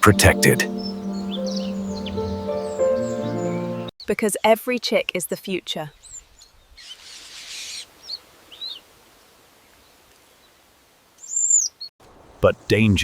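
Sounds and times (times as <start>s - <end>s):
high bird chirps: 0.0s - 3.9s.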